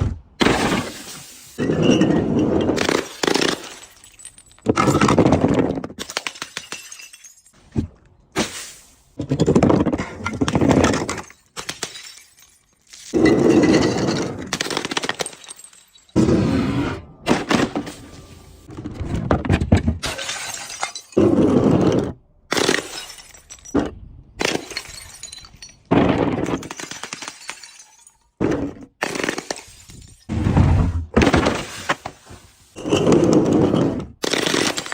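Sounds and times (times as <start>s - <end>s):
glass and objects crunching: 0.5s - 7.6s, 9.3s - 16.3s, 20.0s - 21.4s, 22.5s - 28.4s.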